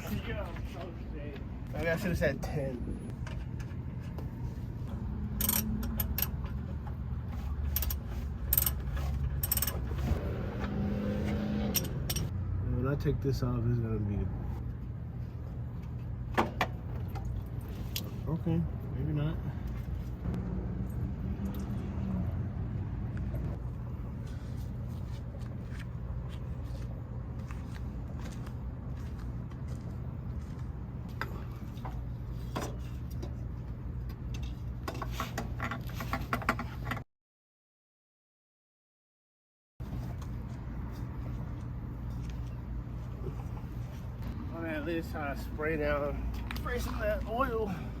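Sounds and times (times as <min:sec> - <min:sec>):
tools clicking and scraping: 0:05.3 - 0:12.3.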